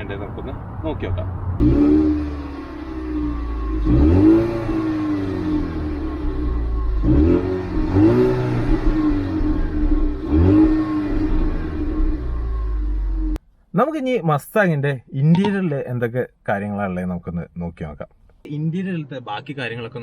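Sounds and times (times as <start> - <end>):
car engine revving and idling: 0.0 - 13.4.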